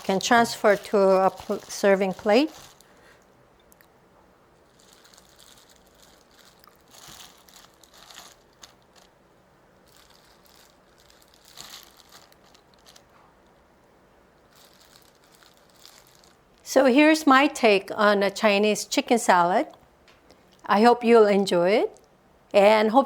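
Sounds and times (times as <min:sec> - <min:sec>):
cabbage salad rustling: 0:00.0 - 0:03.2, 0:04.6 - 0:09.2, 0:09.8 - 0:13.3, 0:14.5 - 0:16.7.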